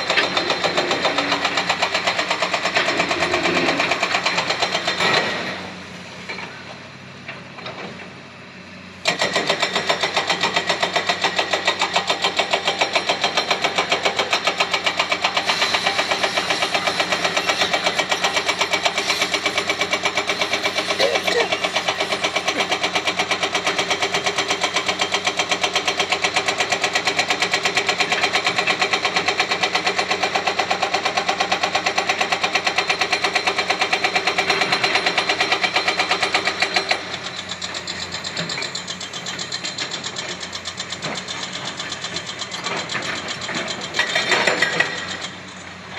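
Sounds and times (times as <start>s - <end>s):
excavator engine running: 0.0s - 45.9s
hydraulic breaker hammer pounding: 9.0s - 45.7s.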